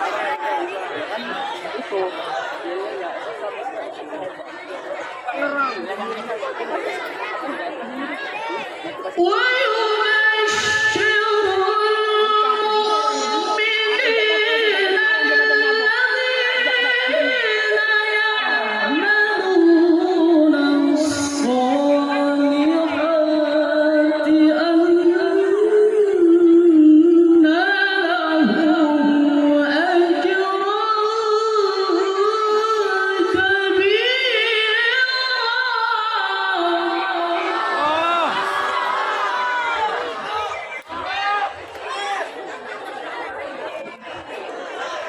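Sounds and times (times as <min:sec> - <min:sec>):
person reciting in a high voice: 0:09.2 - 0:38.0.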